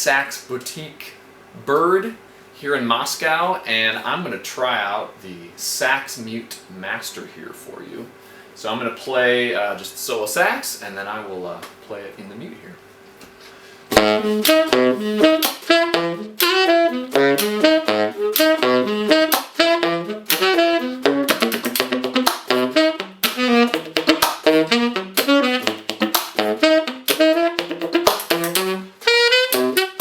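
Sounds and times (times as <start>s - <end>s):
fast jazz saxophone: 13.9s - 30.0s.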